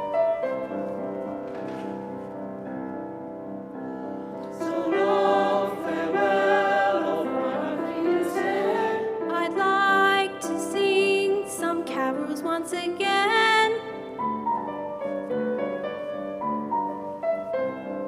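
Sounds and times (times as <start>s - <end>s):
soft piano: 0.0s - 18.0s
voices singing: 4.5s - 11.4s.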